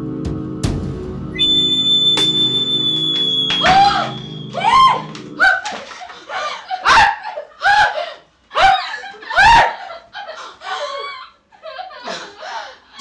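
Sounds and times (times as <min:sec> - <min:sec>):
music: 0:00.0 - 0:05.8
woman screaming: 0:03.5 - 0:05.8.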